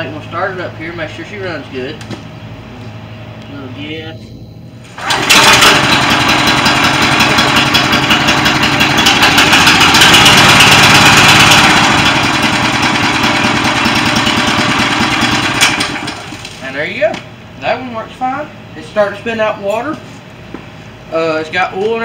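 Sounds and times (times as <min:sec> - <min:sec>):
small gasoline engine running: 0:05.0 - 0:16.6.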